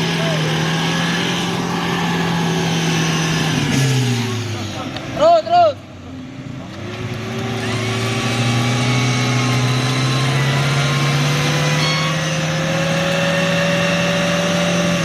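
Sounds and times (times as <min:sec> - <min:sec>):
off-road vehicle motor under load: 0:00.6 - 0:11.8.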